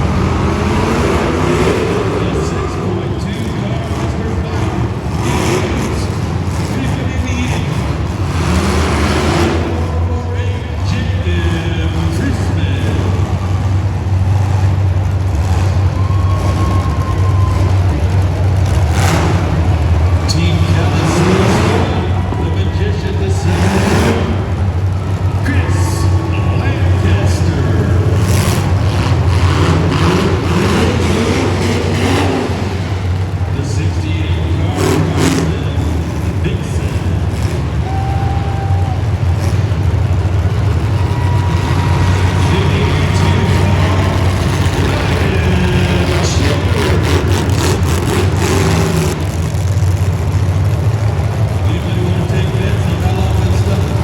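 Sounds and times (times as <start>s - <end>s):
vehicle engine rumbling: 0.0s - 54.0s.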